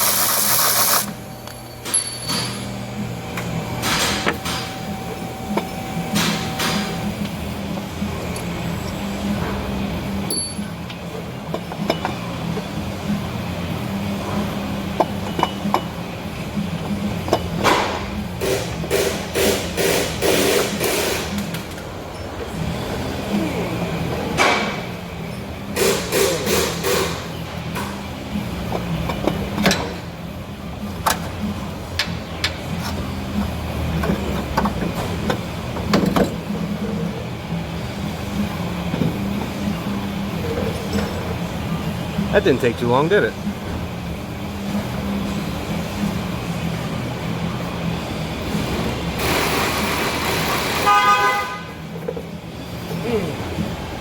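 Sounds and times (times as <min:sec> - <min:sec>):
tools clinking against metal: 0:01.4 - 0:02.8, 0:10.3 - 0:12.2.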